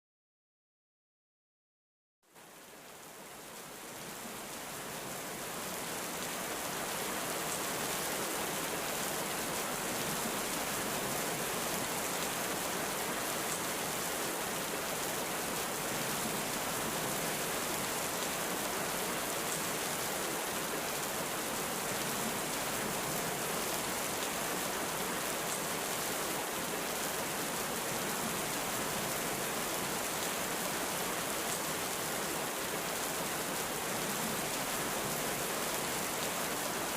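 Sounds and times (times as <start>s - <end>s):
heavy rain: 2.3s - 36.9s.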